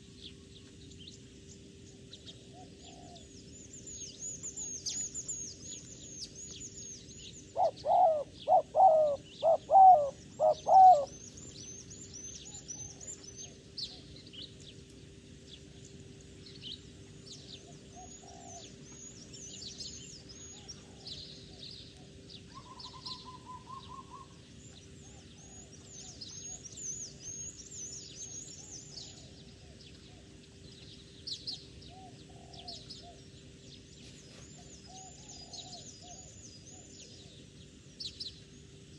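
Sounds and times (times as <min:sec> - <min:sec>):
small birds chirping: 0:00.0 - 0:38.8
dove cooing: 0:02.5 - 0:03.3, 0:07.5 - 0:11.2, 0:18.0 - 0:18.8, 0:31.9 - 0:33.2.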